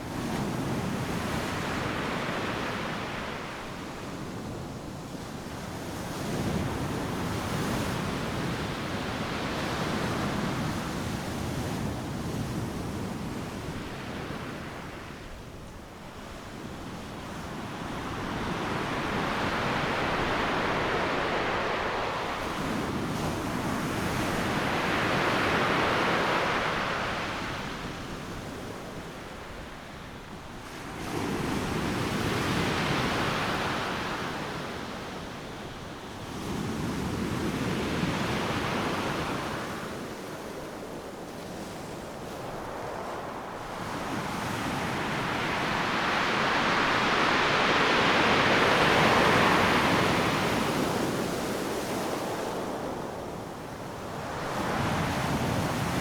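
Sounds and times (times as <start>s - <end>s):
ocean surf breaking: 18.3s - 27.5s, 41.9s - 56.0s.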